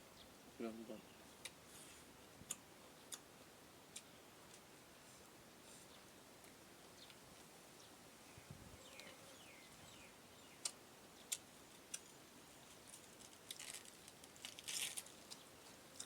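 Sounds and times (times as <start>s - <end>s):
crisp crunching and chewing: 12.9s - 15.4s.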